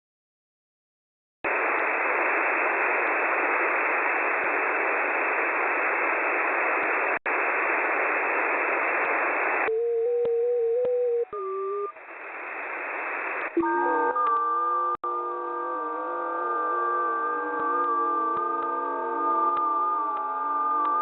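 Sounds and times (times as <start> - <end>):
radio static hiss: 1.5 - 21.0
wavering radio tone: 8.8 - 21.0.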